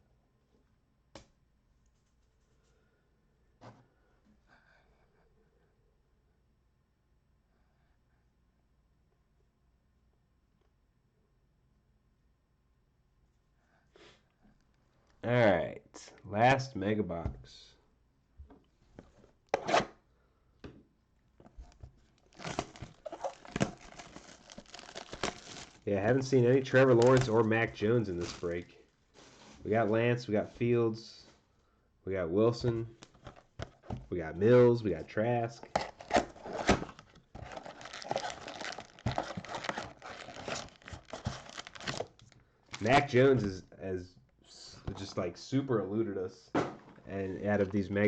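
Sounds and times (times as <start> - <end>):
plastic wrapping tearing and crinkling: 22.0 - 29.6, 35.7 - 43.0.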